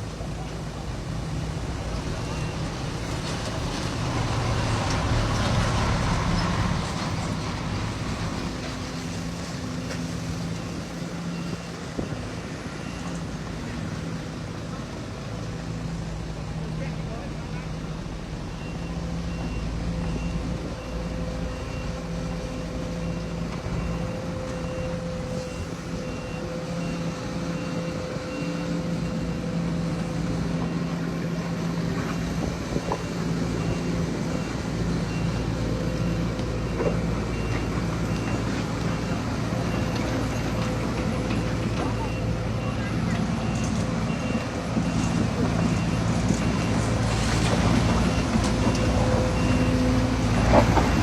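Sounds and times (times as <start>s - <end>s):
diesel machinery running: 0.0s - 51.0s
reversing alarm beeping: 8.2s - 14.0s, 16.4s - 51.0s.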